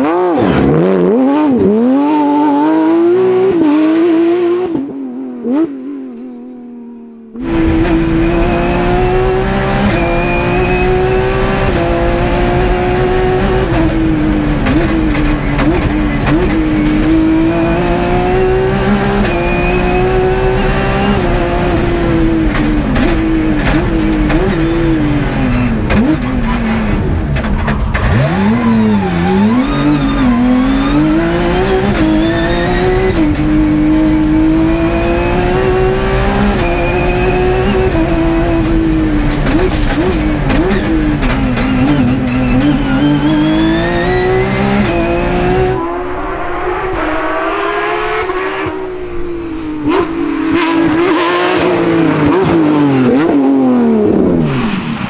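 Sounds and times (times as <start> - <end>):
gear downshifts: 0.0 - 55.0
rally car engine revving: 0.0 - 55.0.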